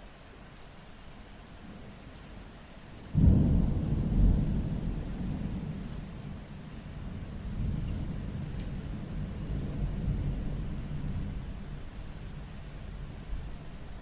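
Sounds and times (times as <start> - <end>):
steady rainfall: 0.0 - 14.0
thunder rumbling: 3.1 - 13.5.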